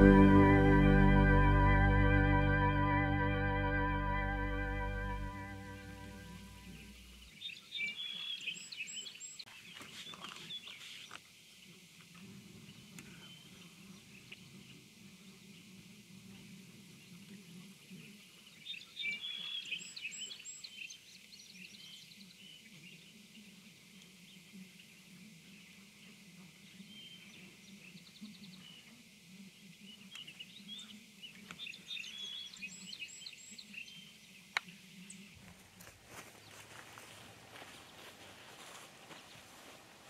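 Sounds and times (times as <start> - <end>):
faint low hum: 0.0 - 7.4.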